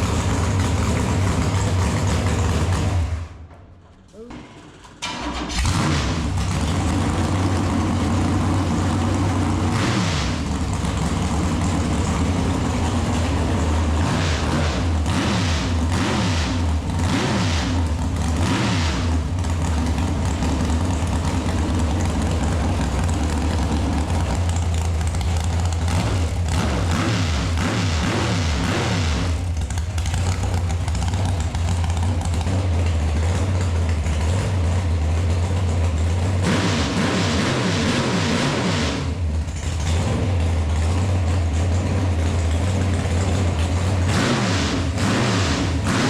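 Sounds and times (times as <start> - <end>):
car engine throttle blips: 5.0 - 46.0.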